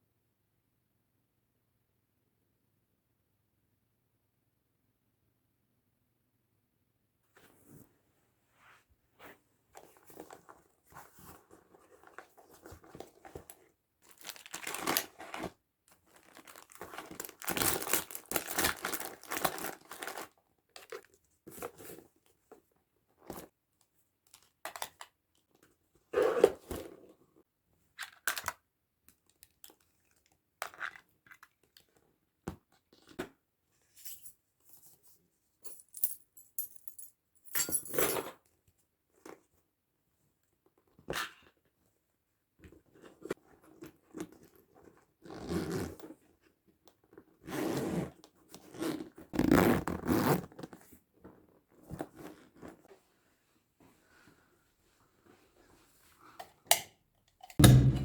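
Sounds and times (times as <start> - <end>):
paper or plastic crinkling: 16.2 - 20.2
knocks: 57.6 - 58.0.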